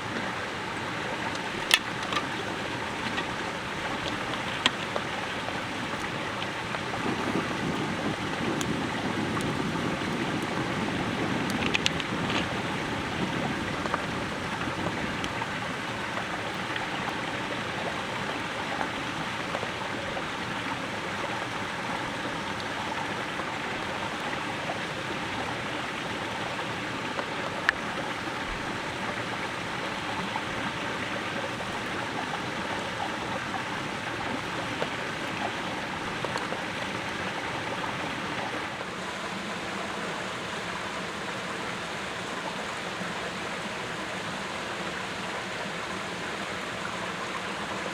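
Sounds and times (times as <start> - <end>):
rushing water: 0.0 - 47.9
faint clicks: 11.4 - 12.6.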